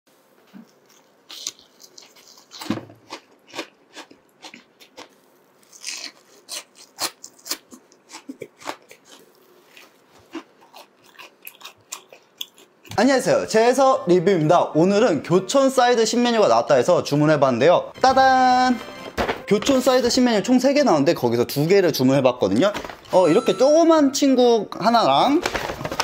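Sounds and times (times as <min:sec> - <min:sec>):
crunchy bites and chewing: 0:00.7 - 0:12.9.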